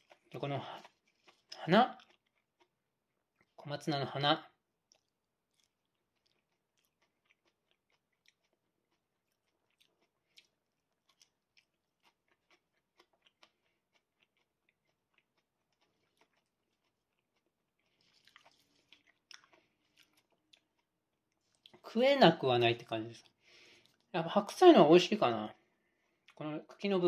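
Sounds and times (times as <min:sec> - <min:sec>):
person crunching raw stalks: 0:14.2 - 0:20.6.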